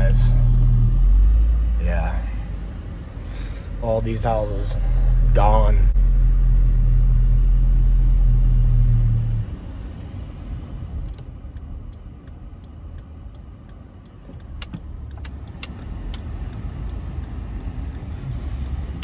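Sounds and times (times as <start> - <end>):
car road and engine rumble: 0.0 - 19.0
light clicks and rattles: 11.0 - 19.0.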